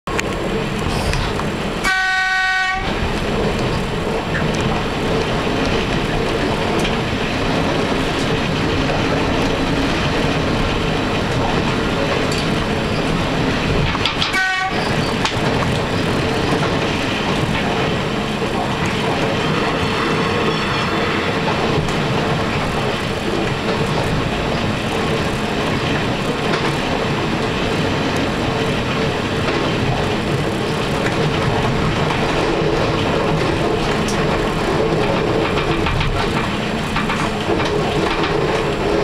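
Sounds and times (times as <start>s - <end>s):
electric train running: 0.1s - 39.0s
train horn: 1.8s - 3.0s, 14.3s - 14.9s.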